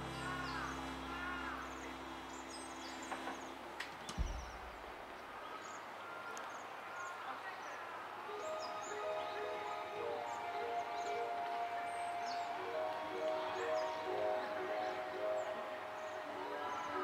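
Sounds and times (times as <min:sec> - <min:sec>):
background music: 0:00.0 - 0:03.8, 0:08.2 - 0:17.0
low thump: 0:04.2 - 0:04.9.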